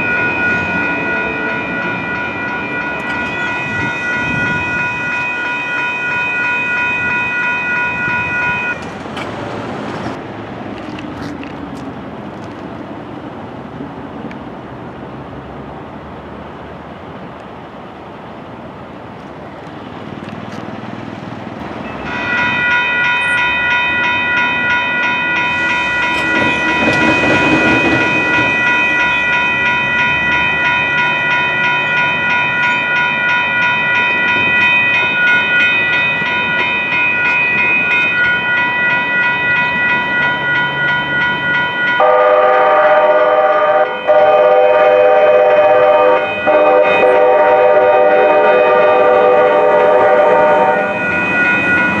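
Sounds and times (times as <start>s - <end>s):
crossing warning bells ringing: 0.0s - 10.2s, 21.5s - 52.0s
rush of traffic: 0.0s - 52.0s.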